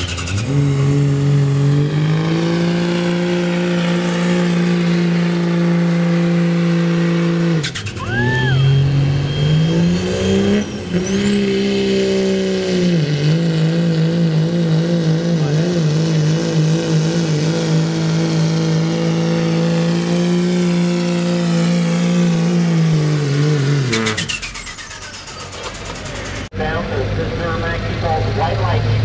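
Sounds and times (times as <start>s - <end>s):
diesel truck engine at full throttle: 0.0s - 29.0s
high turbo whistle: 7.6s - 10.8s.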